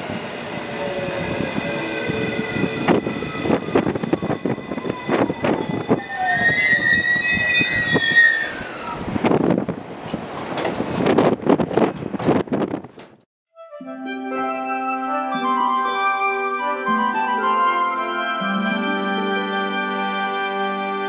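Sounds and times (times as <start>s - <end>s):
high brake squeal: 5.7s - 9.3s.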